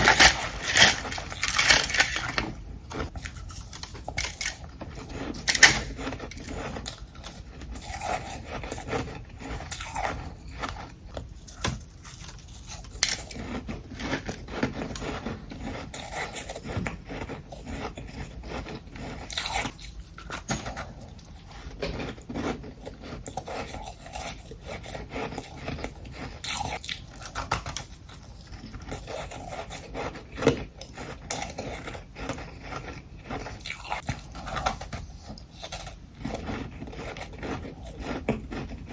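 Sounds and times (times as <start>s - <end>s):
scraping: 0.0s - 10.8s
ice being chewed: 0.0s - 38.9s.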